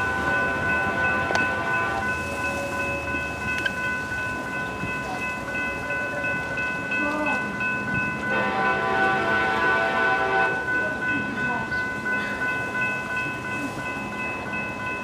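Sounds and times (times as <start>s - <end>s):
train horn chord: 0.0s - 3.7s, 8.2s - 10.9s
steady high ringing: 0.0s - 15.0s.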